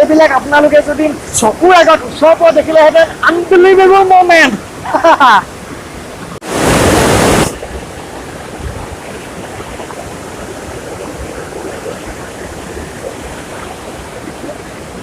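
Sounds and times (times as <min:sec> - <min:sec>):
mountain stream rushing over rocks: 0:00.0 - 0:15.0
loud burst of noise: 0:06.4 - 0:07.7.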